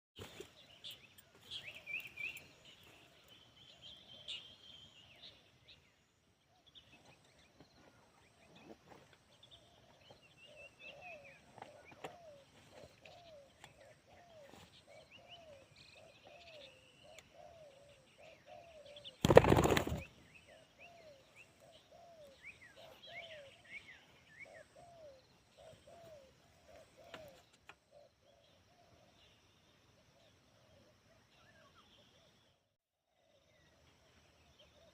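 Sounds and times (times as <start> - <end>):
small birds chirping: 0.2 - 34.9
dove cooing: 24.5 - 28.5.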